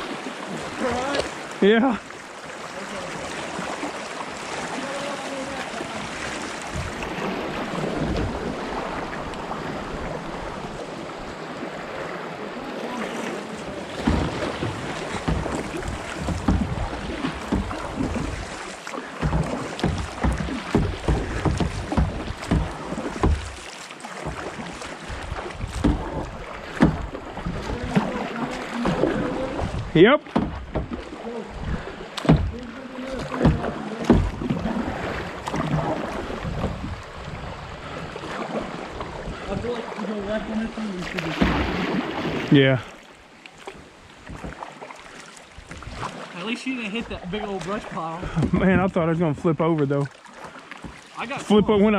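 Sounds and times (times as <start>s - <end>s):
water washing around kayak: 0.0s - 51.9s
sharp knocks: 14.0s - 18.4s, 19.2s - 23.6s, 25.8s - 27.2s, 30.3s - 31.0s, 32.2s - 32.6s, 33.2s - 34.6s
low thumps: 14.0s - 18.6s, 19.2s - 23.6s, 28.9s - 35.8s.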